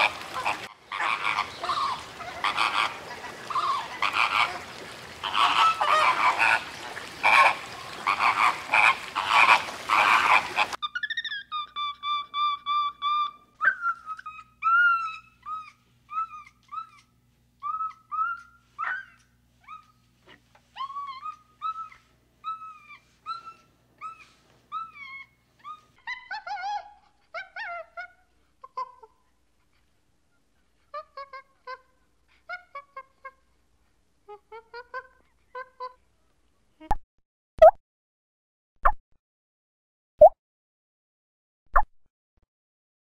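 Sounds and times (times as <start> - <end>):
high-pitched animal calls: 0.0 - 20.1, 20.8 - 29.2.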